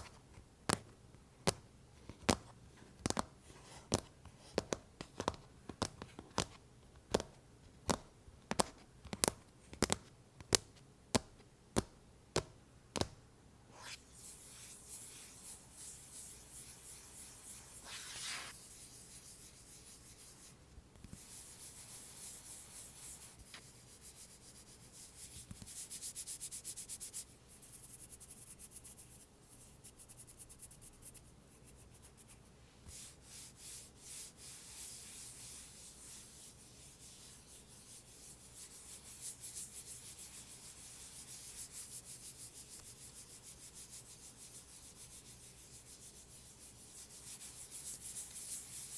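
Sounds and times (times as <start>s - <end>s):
scratching and rubbing on cover: 13.8s - 20.6s, 21.2s - 48.9s.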